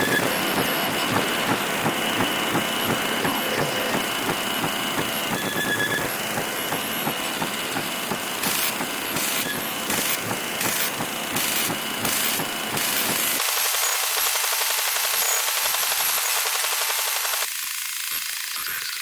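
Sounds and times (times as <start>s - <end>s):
television static and buzzing: 0.0s - 11.0s.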